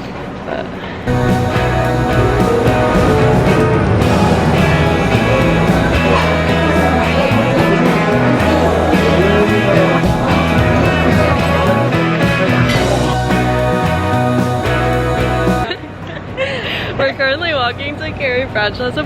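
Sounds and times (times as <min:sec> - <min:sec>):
rock song with guitar and bass: 0:01.1 - 0:15.8
person singing: 0:01.1 - 0:15.9.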